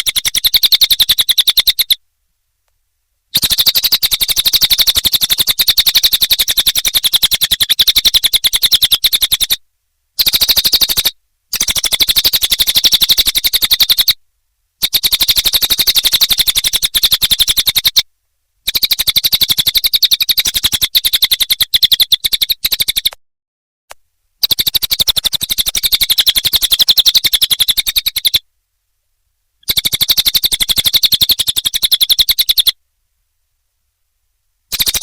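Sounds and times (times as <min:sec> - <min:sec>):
bird singing in rapid trills: 0:00.0 - 0:02.0, 0:03.3 - 0:09.6, 0:10.2 - 0:14.2, 0:14.8 - 0:18.0, 0:18.6 - 0:23.2, 0:24.4 - 0:28.4, 0:29.6 - 0:32.8, 0:34.7 - 0:35.0.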